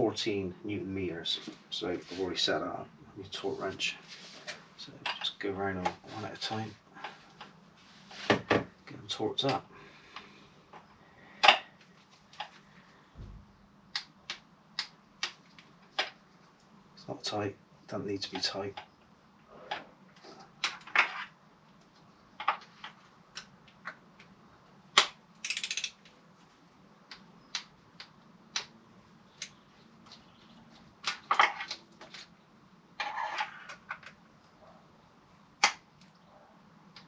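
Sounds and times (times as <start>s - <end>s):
torque wrench ratcheting: 25.4s - 25.9s.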